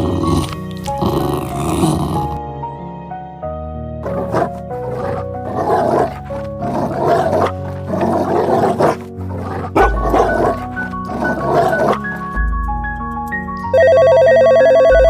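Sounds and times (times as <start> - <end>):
wolves growling: 0.0 - 2.4, 4.0 - 13.0
music of sustained notes: 0.0 - 15.0.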